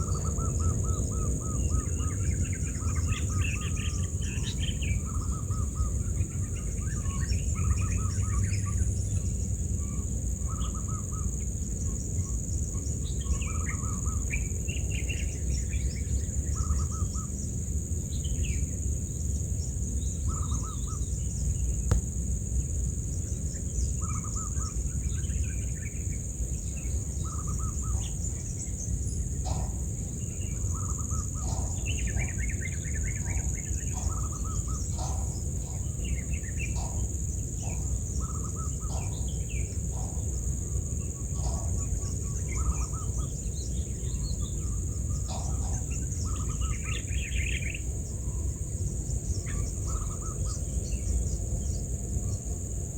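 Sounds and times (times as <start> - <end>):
birds chirping: 0.0 - 9.1, 20.0 - 51.9
low background rumble: 0.0 - 52.9.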